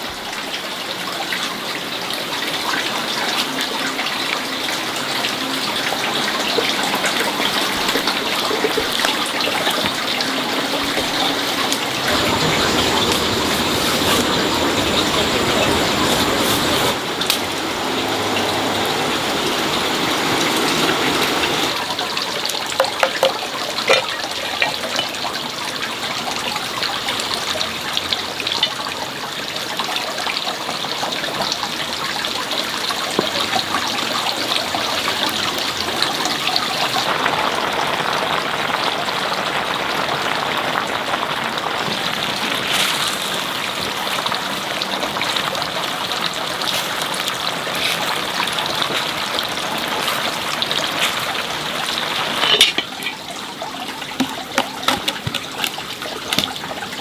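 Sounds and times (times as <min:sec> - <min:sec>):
running water flowing: 0:00.0 - 0:57.0
small knocks: 0:22.7 - 0:25.0, 0:54.0 - 0:56.6.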